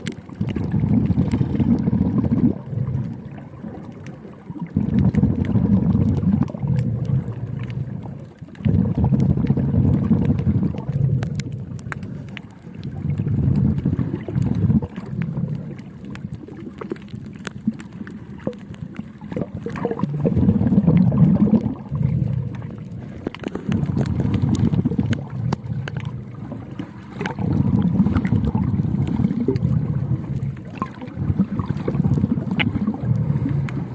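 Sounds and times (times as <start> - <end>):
faint clicks: 0.0 - 0.6, 4.8 - 20.2, 21.6 - 27.4
underwater bubbling rumble: 0.0 - 33.9.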